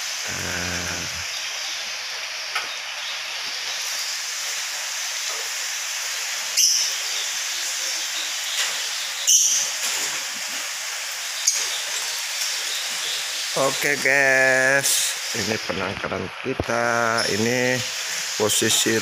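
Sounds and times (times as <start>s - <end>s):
rain hissing: 0.0s - 19.0s.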